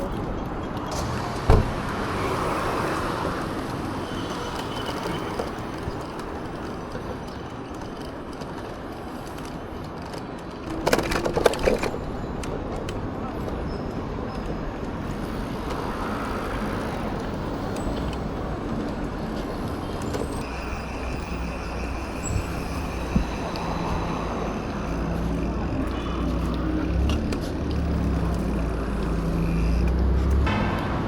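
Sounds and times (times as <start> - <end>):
passing vehicles: 0.0 - 31.0
low vehicle engine rumble: 10.4 - 31.0.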